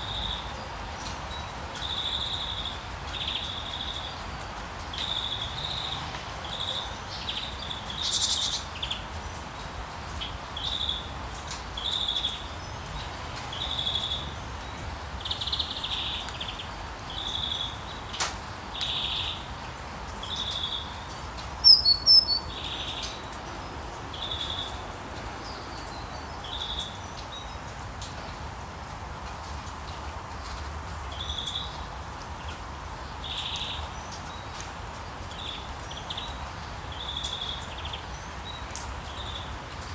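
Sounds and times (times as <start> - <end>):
high chirping wildlife calls: 7.9 - 8.7, 21.6 - 23.2.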